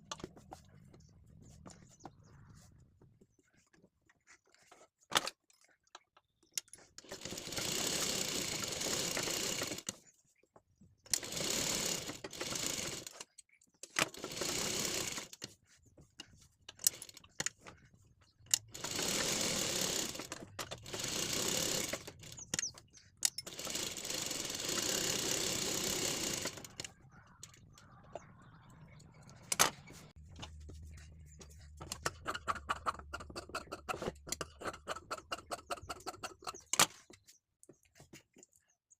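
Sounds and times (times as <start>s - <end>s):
sewing machine stitching: 7.0s - 10.0s, 11.1s - 13.3s, 13.9s - 15.6s, 18.5s - 27.5s, 31.8s - 37.0s
sharp clicks: 18.4s - 30.2s.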